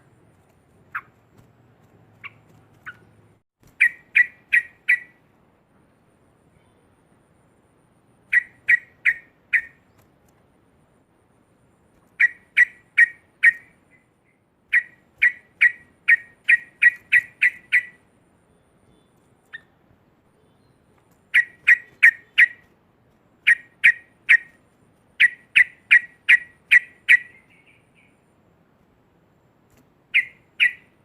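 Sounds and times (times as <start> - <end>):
bird chattering sharp notes: 2.2 - 5.2, 8.3 - 9.8, 12.2 - 13.8, 14.7 - 18.0, 21.3 - 22.7, 23.4 - 24.6, 25.2 - 28.0, 30.1 - 31.0.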